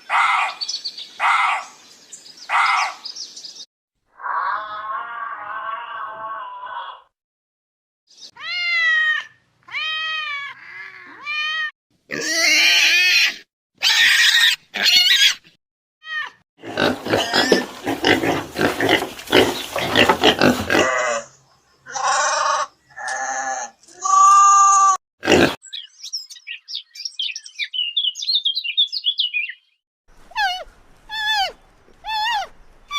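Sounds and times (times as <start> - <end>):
animal cries rising and falling: 4.1 - 7.1, 8.4 - 21.3, 21.9 - 25.0, 30.3 - 32.6
animal harsh squealing: 30.3 - 32.5.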